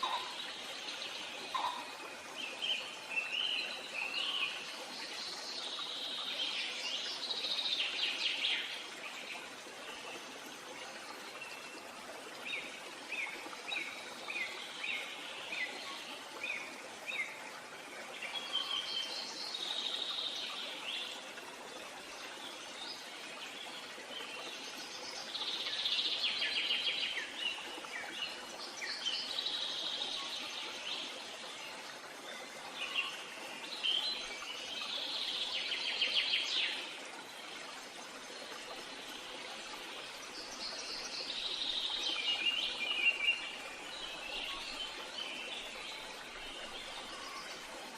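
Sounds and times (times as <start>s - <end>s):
wild birds singing: 0.0s - 4.6s.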